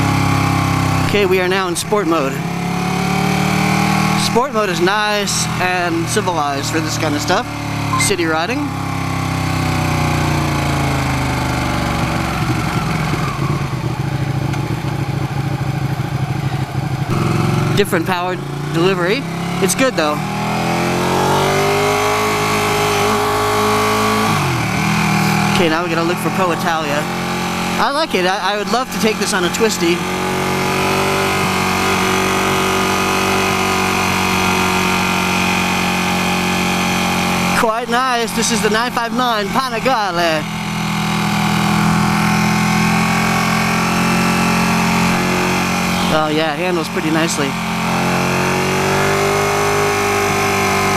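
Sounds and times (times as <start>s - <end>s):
motorcycle engine running steadily: 0.0s - 50.9s
wind and road noise: 0.0s - 50.9s
motorcycle engine slowing to idle: 9.7s - 18.7s.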